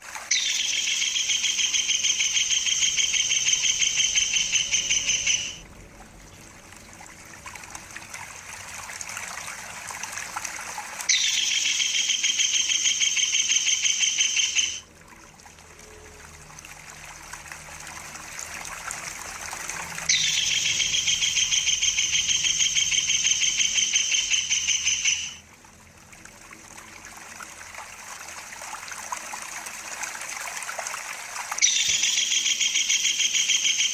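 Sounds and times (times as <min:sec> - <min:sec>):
water trickling: 0:00.0 - 0:33.9
kingfisher rolling trill: 0:00.3 - 0:05.6, 0:20.0 - 0:25.4.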